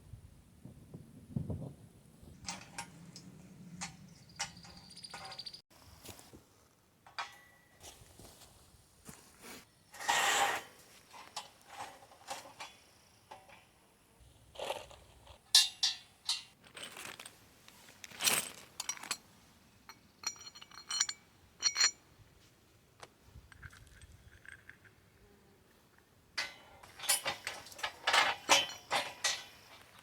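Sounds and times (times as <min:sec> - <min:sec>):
metal bolts clinking and scraping: 0:02.3 - 0:05.6, 0:07.0 - 0:08.0, 0:09.9 - 0:13.8, 0:14.6 - 0:22.0, 0:26.4 - 0:30.0
short metallic rings: 0:19.9 - 0:22.0, 0:26.4 - 0:30.0.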